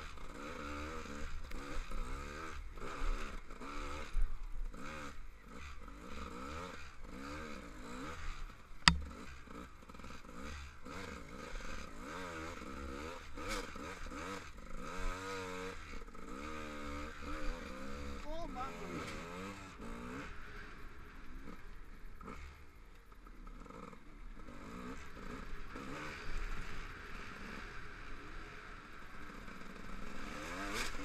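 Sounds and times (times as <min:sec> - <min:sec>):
dirt bike engine revving: 0:00.1 - 0:22.6, 0:23.5 - 0:31.0
sharp knock: 0:08.9 - 0:09.1.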